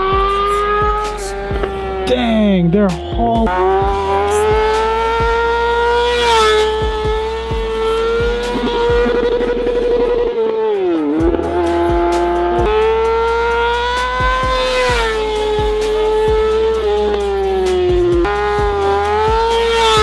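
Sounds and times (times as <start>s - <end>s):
motorcycle engine revving high: 0.0s - 20.0s.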